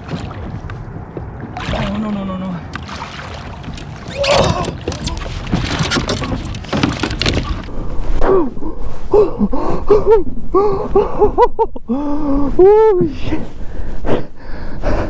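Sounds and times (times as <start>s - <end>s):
fish splashing against kayak hull: 2.7s - 7.7s.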